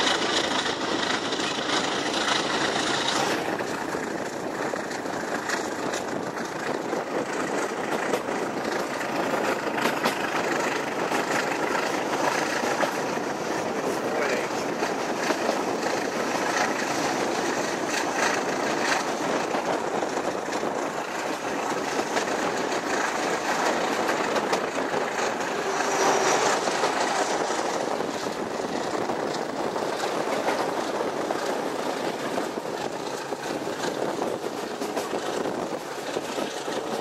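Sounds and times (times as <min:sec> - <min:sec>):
train wheel and wind rush: 0:00.0 - 0:37.0
faint rail-joint clicks: 0:07.3 - 0:13.2.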